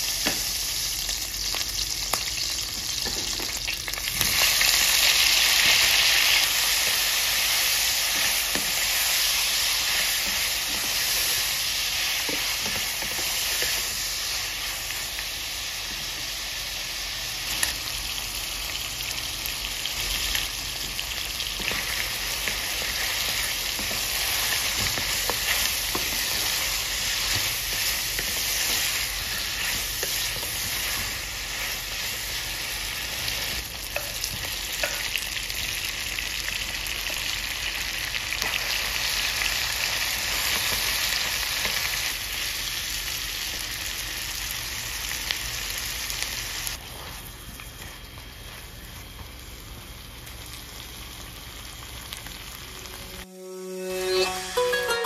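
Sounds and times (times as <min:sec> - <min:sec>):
meat sizzling in a pan: 0:00.0 - 0:53.0
plucked-string music: 0:53.3 - 0:55.0.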